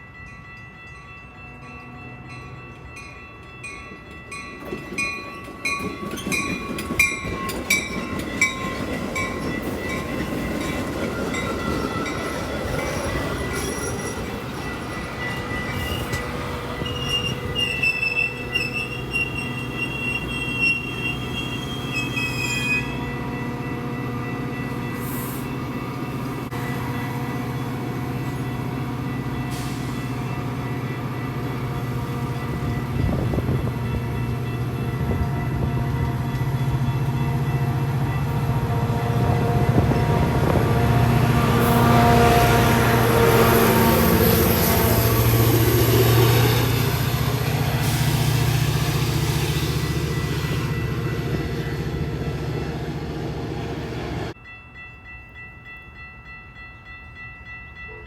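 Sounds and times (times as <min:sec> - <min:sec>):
train rumble: 0:00.0 - 0:57.9
metallic wheel squeal: 0:12.7 - 0:14.4, 0:16.8 - 0:23.1.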